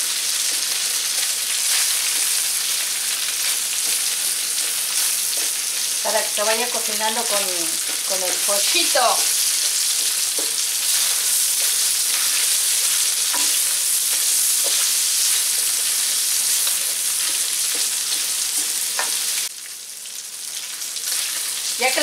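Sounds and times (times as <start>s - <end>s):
chicken and onion sizzling in oil: 0.0s - 22.0s
spatula tapping and scraping pan: 7.8s - 8.5s, 9.2s - 15.6s, 16.4s - 19.2s.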